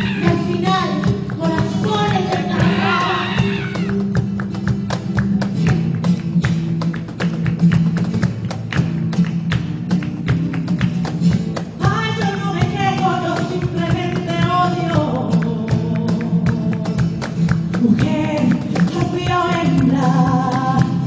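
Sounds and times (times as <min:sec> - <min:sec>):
person singing: 0:00.0 - 0:04.0, 0:11.8 - 0:17.2, 0:17.8 - 0:21.0
rapid percussive strikes: 0:00.0 - 0:21.0.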